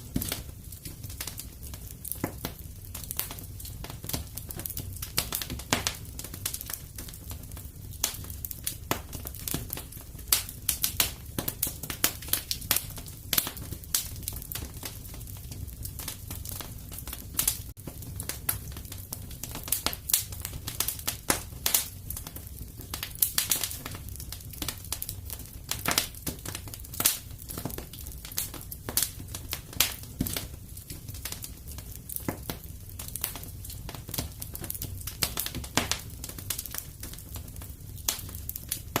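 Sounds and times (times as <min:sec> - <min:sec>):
fire crackling: 0:00.0 - 0:39.0.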